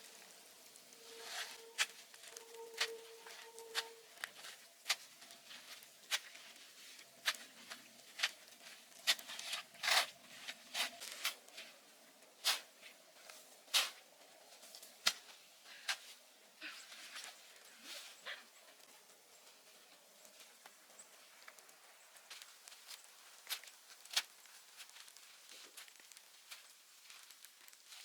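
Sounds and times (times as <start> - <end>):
sharp clicks and crackles: 18.8 - 28.0.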